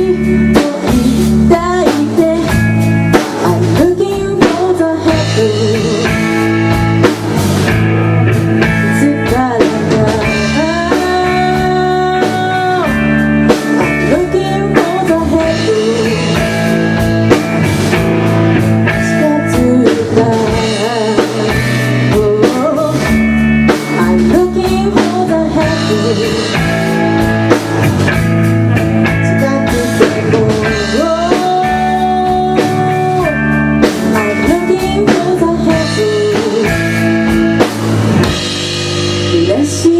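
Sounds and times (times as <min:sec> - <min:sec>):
person singing: 0:00.0 - 0:06.4, 0:08.7 - 0:13.2, 0:13.8 - 0:17.0, 0:18.9 - 0:27.0, 0:29.0 - 0:37.4, 0:39.1 - 0:39.9
electric guitar lead: 0:00.0 - 0:39.9
live rock band playing: 0:00.0 - 0:39.9.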